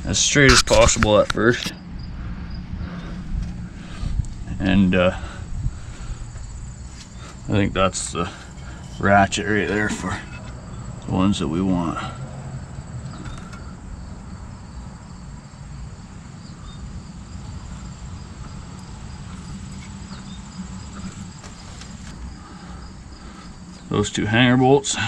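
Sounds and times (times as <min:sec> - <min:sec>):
insects trilling: 0:00.0 - 0:25.0.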